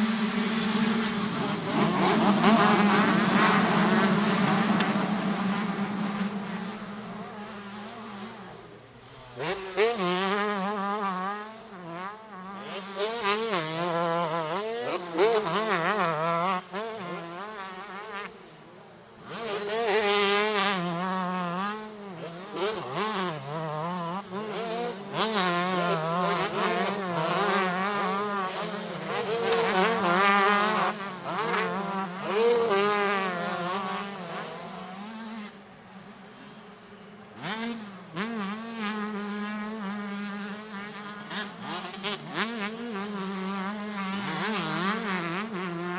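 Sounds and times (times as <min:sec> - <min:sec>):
motocross bikes revving: 0:00.0 - 0:18.2, 0:19.2 - 0:35.6, 0:37.3 - 0:45.9.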